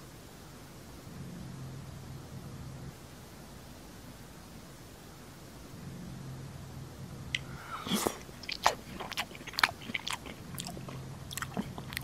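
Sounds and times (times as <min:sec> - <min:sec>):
crunchy chewing and biting: 0:07.4 - 0:12.0.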